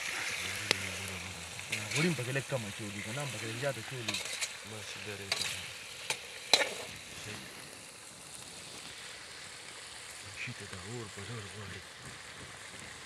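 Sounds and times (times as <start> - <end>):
chicken sizzling in a wok: 0.0 - 13.0
metal ladle knocking pan: 4.1 - 4.5, 5.3 - 6.9.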